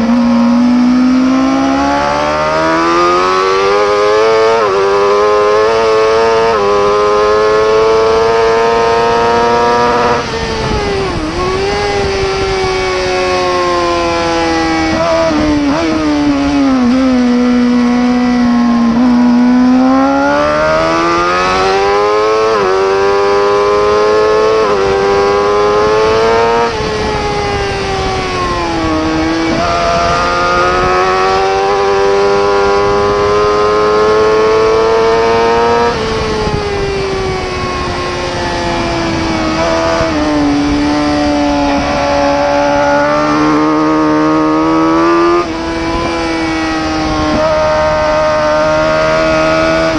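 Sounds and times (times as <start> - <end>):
superbike engine at high revs: 0.0 - 49.9.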